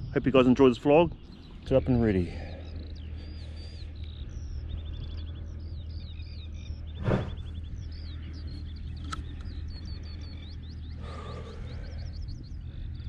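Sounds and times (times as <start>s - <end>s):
small birds chirping and trilling: 0.0s - 13.0s
steady low rumble: 0.0s - 13.0s.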